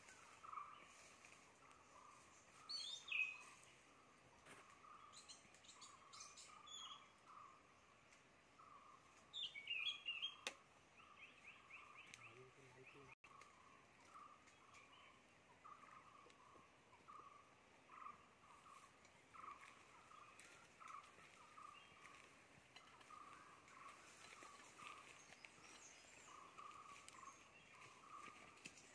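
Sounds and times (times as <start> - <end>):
high bird chirps: 9.4 - 13.4.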